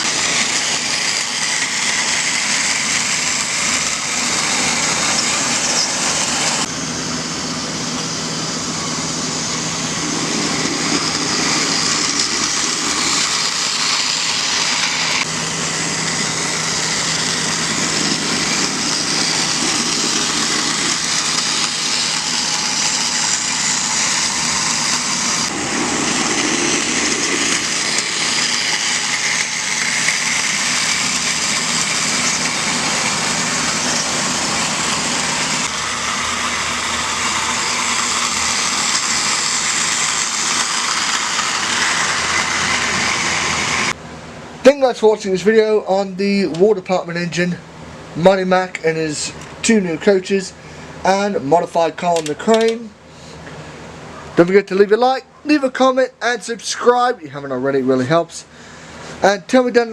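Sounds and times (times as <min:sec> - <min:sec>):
toy train motor whirring: 0:00.0 - 0:06.7, 0:08.7 - 0:44.0.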